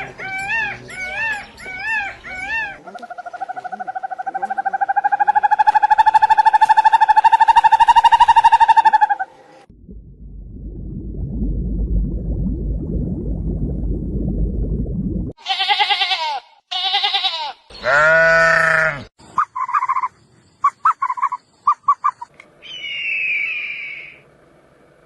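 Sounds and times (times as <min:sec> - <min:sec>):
low rumbling: 0:09.4 - 0:15.4
livestock bleating: 0:15.4 - 0:19.1.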